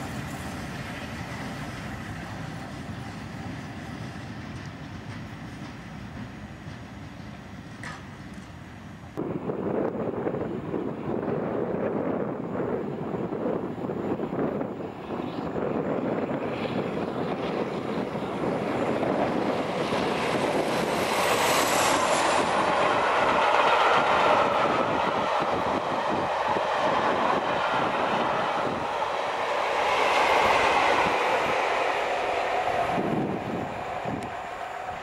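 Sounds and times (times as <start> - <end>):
diesel locomotive passing: 0.0 - 35.0.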